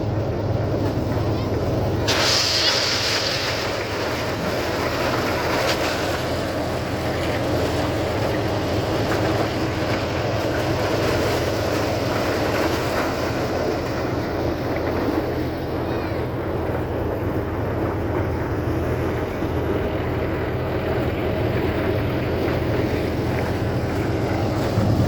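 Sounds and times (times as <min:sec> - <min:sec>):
tractor engine running: 0:00.0 - 0:25.0
brief hiss: 0:02.1 - 0:03.7.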